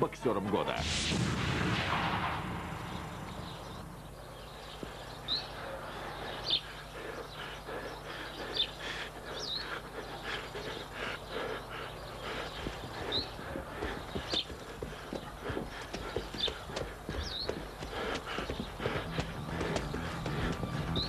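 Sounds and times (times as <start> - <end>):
faint outdoor background: 0.0 - 21.0
deep boom: 0.8 - 4.1
birds chirping: 2.1 - 21.0.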